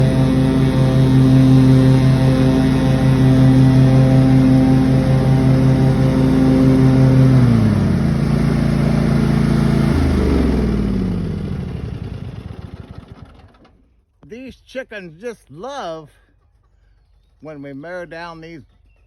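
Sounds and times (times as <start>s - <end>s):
mower engine running: 0.0s - 13.8s.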